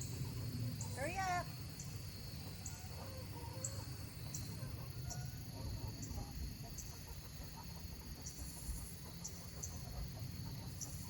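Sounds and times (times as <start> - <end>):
high insect chirp: 0.0 - 11.0
chickens clucking softly: 2.4 - 11.0.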